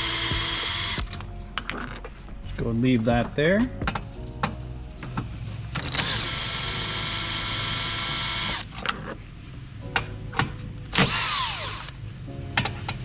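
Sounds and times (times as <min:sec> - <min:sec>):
cordless power tool motor: 0:00.0 - 0:01.1, 0:06.0 - 0:08.7, 0:11.0 - 0:12.0.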